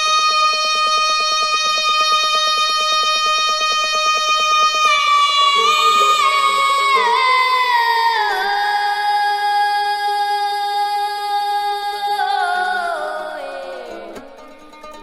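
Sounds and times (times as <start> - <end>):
high female voice singing: 0.0 - 14.4
low sustained drone: 4.7 - 9.2.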